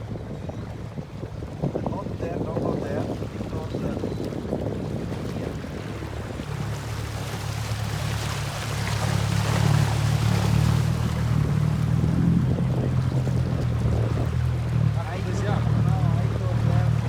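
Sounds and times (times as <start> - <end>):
motorboat engine humming: 0.0 - 17.0
water rushing past hull: 0.0 - 17.0
wind on microphone: 0.0 - 17.0.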